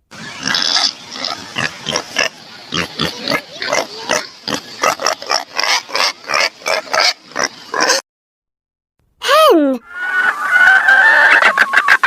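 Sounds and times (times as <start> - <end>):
pig oinking: 0.4 - 8.0.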